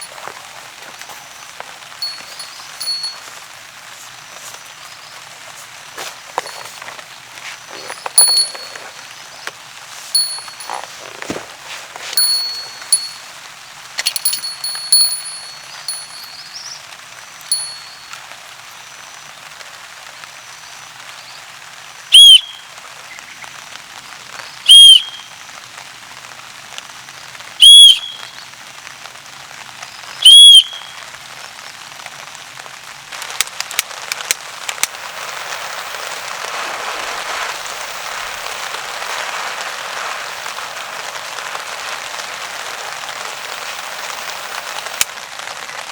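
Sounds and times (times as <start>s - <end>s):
faint chirps: 0.0s - 5.6s, 6.3s - 13.4s, 14.0s - 16.8s, 17.5s - 18.3s
loud whistle-like calls: 0.0s - 13.4s, 14.0s - 16.8s, 17.4s - 18.3s, 22.1s - 22.7s, 24.7s - 25.3s, 27.6s - 28.4s, 30.2s - 31.0s
rain on a tarp: 0.0s - 45.9s.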